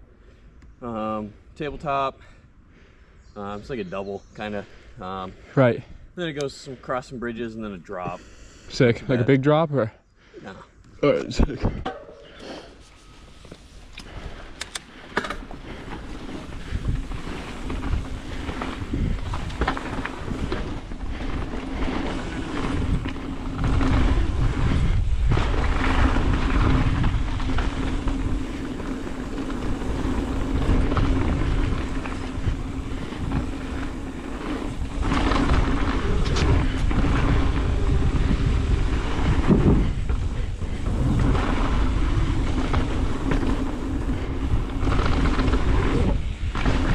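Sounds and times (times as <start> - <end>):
bike rattle: 11.8 - 46.9
bike tyre rumble on dirt: 12.3 - 46.9
sharp clicks: 14.0 - 14.9
wind rushing over microphone: 15.4 - 46.9.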